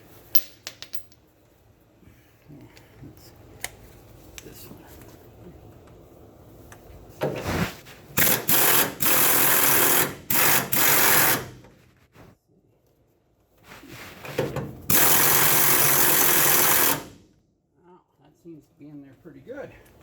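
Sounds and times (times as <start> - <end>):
pneumatic air wrench bursts: 8.2 - 11.6, 14.9 - 17.2.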